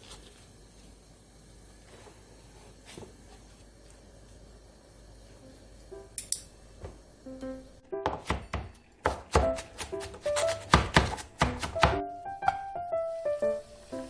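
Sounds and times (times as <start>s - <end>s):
knife chopping on a cutting board: 8.0s - 12.6s
plucked-instrument background music: 11.5s - 14.0s.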